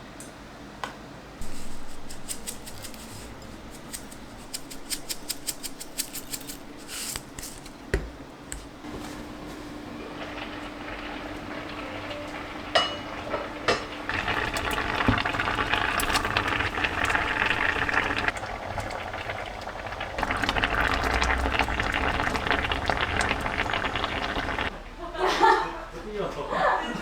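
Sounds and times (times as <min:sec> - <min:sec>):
food sizzling in a hot pan: 0:08.9 - 0:24.7.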